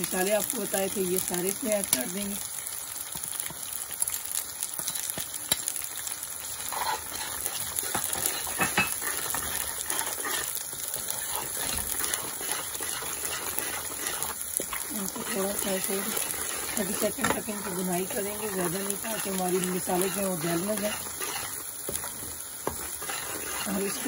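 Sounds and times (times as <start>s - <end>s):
food sizzling in oil: 0.0s - 24.0s
spoon scraping pot: 6.7s - 24.0s.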